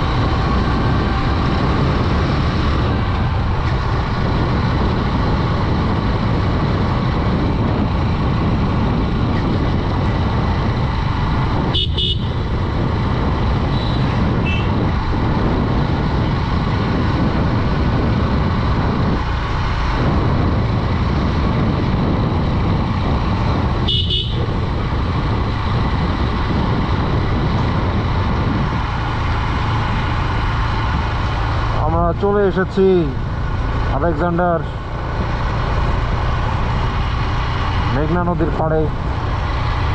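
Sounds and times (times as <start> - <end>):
motorcycle engine running: 0.0 - 39.9
road and wind noise: 0.0 - 39.9
horn beeps: 11.8 - 12.4, 23.9 - 24.5.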